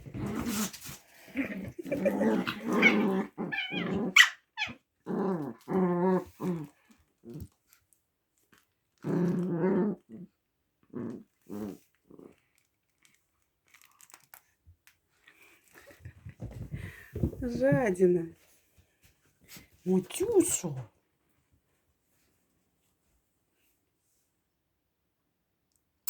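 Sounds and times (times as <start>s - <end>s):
small dogs growling in play: 0.0s - 7.8s, 9.0s - 12.6s, 15.7s - 17.4s.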